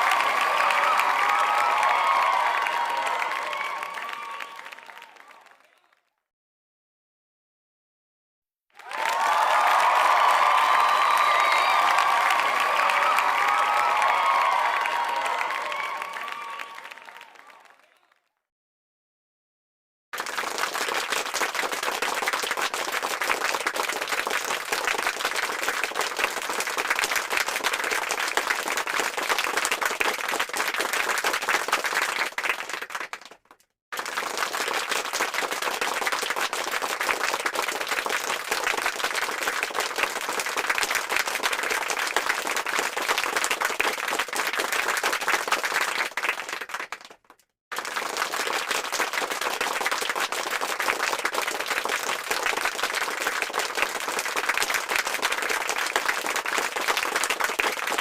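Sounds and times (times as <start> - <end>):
crowd applause: 0.0 - 6.0, 8.8 - 18.2, 20.2 - 33.4, 34.0 - 58.0.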